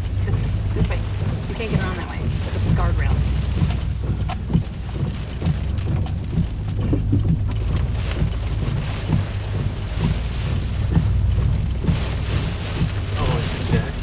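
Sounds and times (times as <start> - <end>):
heavy rain beating on vehicle: 0.0 - 14.0
strong wind buffeting vehicle: 0.0 - 14.0.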